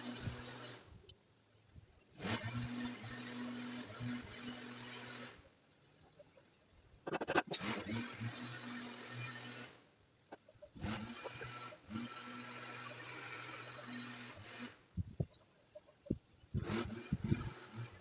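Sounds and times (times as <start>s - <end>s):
small power tool running: 0.0s - 0.9s, 2.2s - 5.4s, 7.4s - 9.8s, 10.8s - 15.3s, 16.1s - 18.0s.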